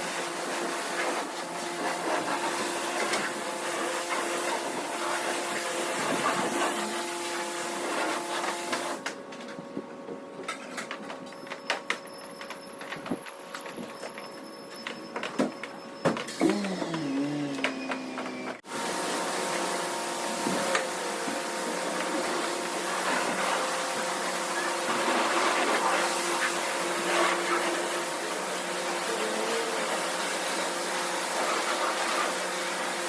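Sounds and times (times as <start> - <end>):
pump hum: 16.3 - 24.7
pressure washer spraying: 18.7 - 33.0.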